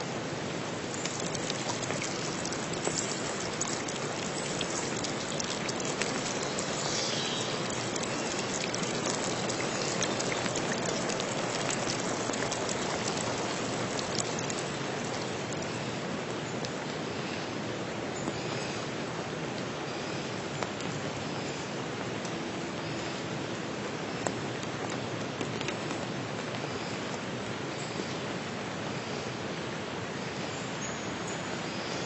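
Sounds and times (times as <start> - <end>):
steady rain hiss: 0.0 - 32.0
raindrop ticks: 0.8 - 17.4, 20.6 - 21.1, 22.1 - 22.4, 24.2 - 28.2.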